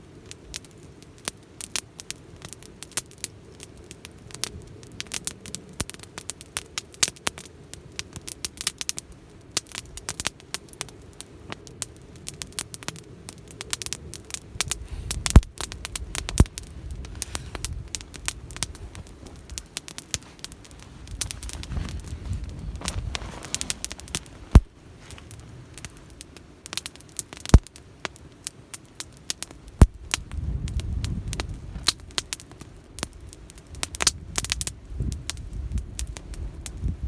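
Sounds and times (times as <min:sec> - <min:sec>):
wood fire crackling: 0:00.0 - 0:37.0
loud fire pops: 0:00.2 - 0:37.0
wind rumble on microphone: 0:11.4 - 0:26.1, 0:29.7 - 0:37.0.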